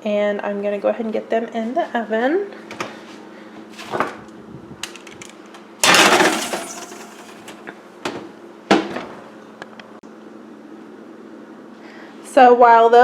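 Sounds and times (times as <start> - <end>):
baking sheet metallic clatter: 5.8 - 7.7.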